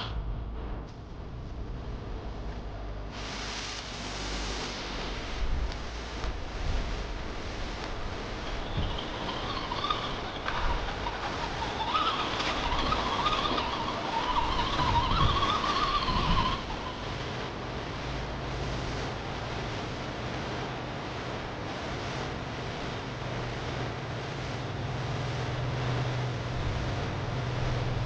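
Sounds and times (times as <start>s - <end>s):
steady low hum: 0.0s - 28.0s
electric motor whine: 7.7s - 19.7s.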